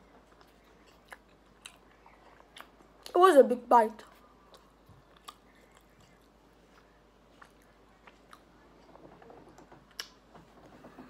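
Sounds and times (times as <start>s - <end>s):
closed-mouth chewing: 0.0s - 3.2s, 4.0s - 8.9s.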